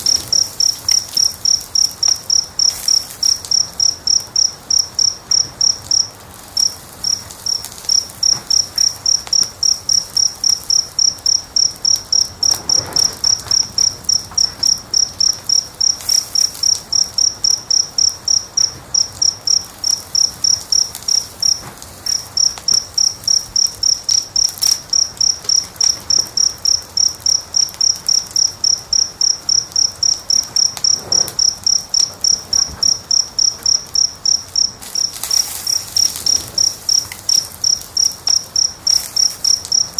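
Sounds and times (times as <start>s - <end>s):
cricket chirping: 0.0s - 39.9s
faint fire crackles: 0.0s - 39.9s.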